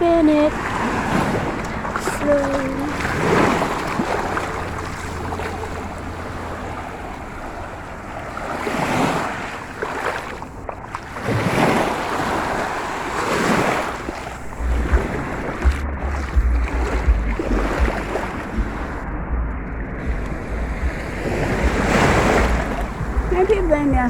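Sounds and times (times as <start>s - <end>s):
surf washing onto beach: 0.0s - 19.0s, 20.0s - 24.0s
wind rumbling on microphone: 0.0s - 24.0s.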